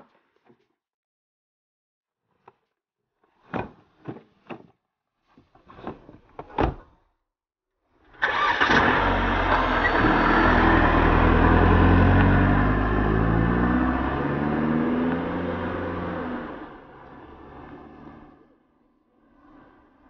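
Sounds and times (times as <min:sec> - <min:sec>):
car engine starting and running: 0:08.2 - 0:18.4.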